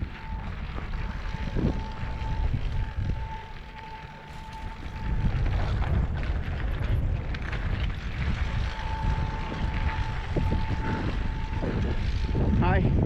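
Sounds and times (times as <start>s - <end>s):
bike tyres crunching over ground: 0.0s - 13.0s
electric motor whine: 0.0s - 13.0s
wind buffeting microphone: 0.0s - 13.0s.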